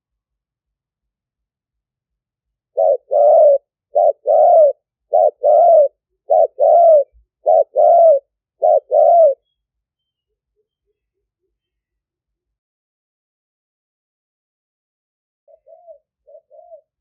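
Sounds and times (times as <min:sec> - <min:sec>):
dove cooing: 0:02.8 - 0:09.4, 0:15.5 - 0:17.0.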